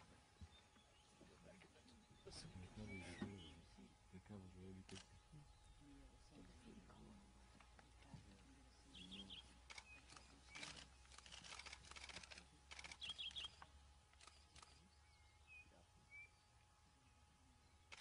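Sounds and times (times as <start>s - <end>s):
small bird chirping: 8.9s - 16.5s.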